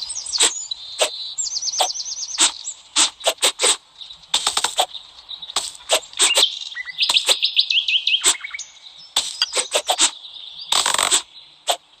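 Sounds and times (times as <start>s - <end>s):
bird chirping rising notes: 0.0s - 10.8s
crisp cutting strokes: 2.4s - 3.8s, 5.6s - 6.5s, 9.2s - 10.2s.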